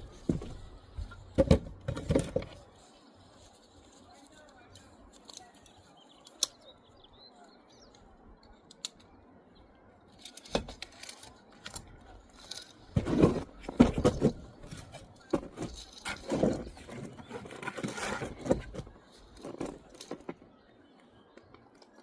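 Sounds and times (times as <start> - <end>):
sharp clicks: 4.8 - 6.7
trowel scraping mortar: 12.8 - 20.3.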